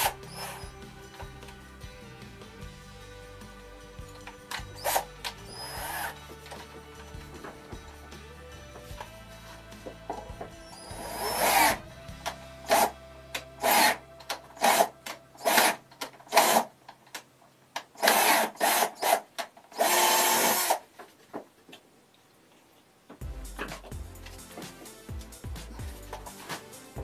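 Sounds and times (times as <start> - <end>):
power drill boring into wood: 0.0 - 0.7, 4.6 - 6.2, 10.6 - 11.8, 13.6 - 14.0, 14.6 - 16.7, 18.0 - 19.2, 19.8 - 20.8.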